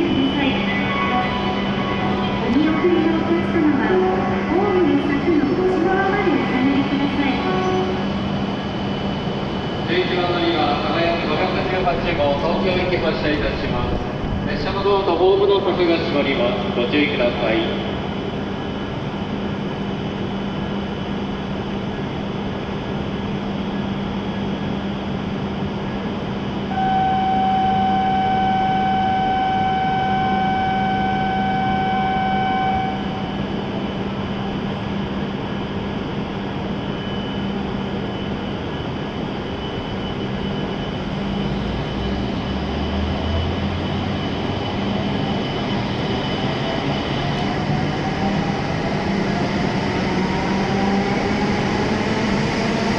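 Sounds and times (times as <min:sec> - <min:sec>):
steady warning tone: 0:00.0 - 0:18.0, 0:26.6 - 0:34.6, 0:35.3 - 0:52.9
train humming: 0:00.0 - 0:52.9
train rumble pulling away: 0:07.6 - 0:16.2, 0:39.5 - 0:52.9.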